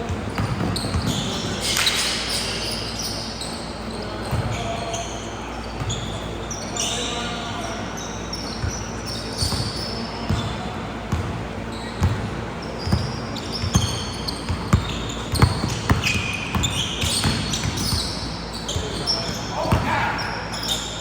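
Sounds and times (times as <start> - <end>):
basketballs bouncing on hardwood: 0.0 - 1.7, 12.0 - 20.0.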